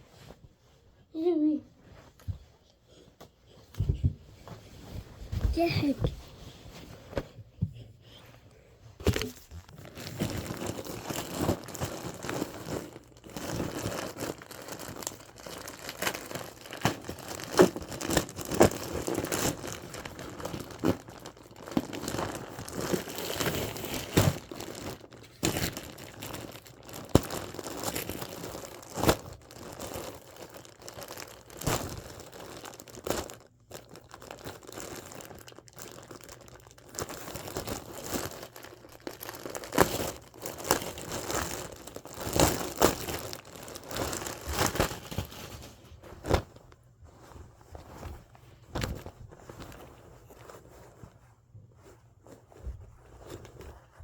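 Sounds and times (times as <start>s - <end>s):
packaging crinkling and tearing: 9.0s - 46.6s.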